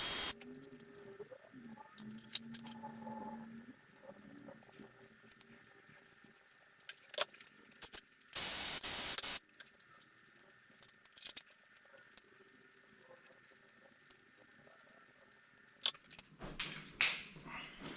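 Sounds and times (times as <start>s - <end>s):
spraying hiss: 0.0s - 0.4s, 8.4s - 9.4s.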